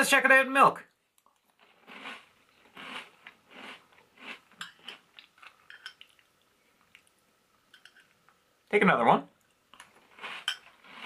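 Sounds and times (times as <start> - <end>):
chewing crunchy cereal: 1.2 - 7.1, 9.8 - 11.0.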